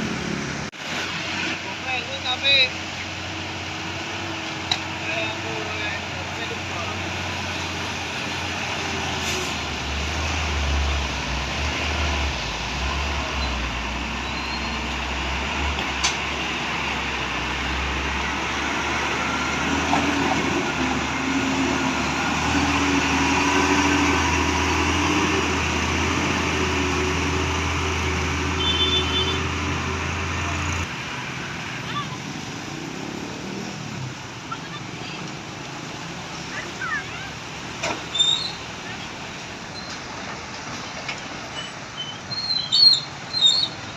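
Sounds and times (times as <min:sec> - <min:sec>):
truck diesel engines rumbling: 0:00.0 - 0:43.9
wet tyres on road: 0:00.0 - 0:43.9.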